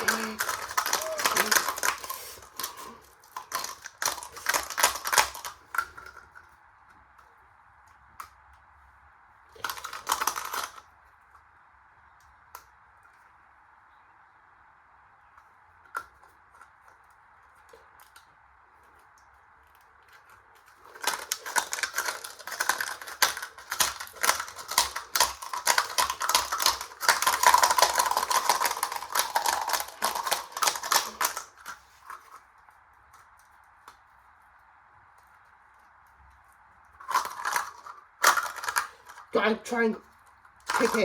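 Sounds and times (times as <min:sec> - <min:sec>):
coins rattling in washing machine drum: 0:00.0 - 0:05.5, 0:21.0 - 0:31.7, 0:37.0 - 0:39.3, 0:40.7 - 0:41.0.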